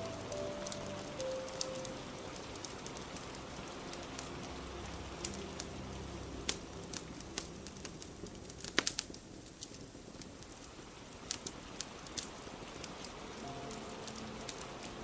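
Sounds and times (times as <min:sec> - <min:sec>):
fire crackling and popping: 0:00.0 - 0:15.0
steady rain: 0:00.0 - 0:15.0.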